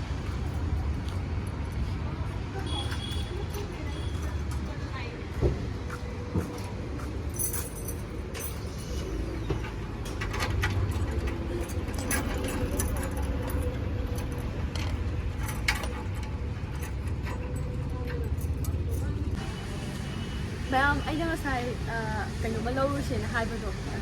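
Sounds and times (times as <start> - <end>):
metallic jingles: 7.3 - 9.0, 10.7 - 19.3.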